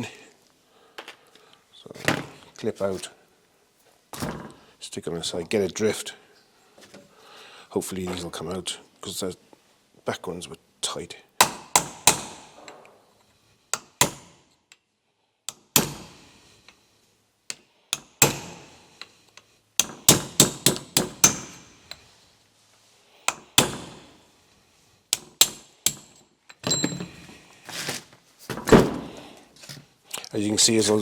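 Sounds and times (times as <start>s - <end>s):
hammer striking steel drift: 15.5s - 16.3s, 17.5s - 18.8s, 23.3s - 24.2s, 25.2s - 27.0s.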